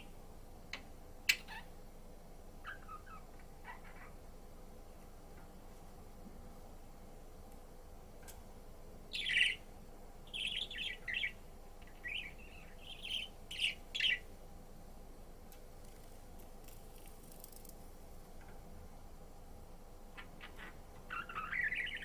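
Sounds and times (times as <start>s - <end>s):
budgerigar chirping: 2.6s - 4.1s, 9.1s - 9.6s, 12.0s - 14.2s, 20.2s - 22.0s.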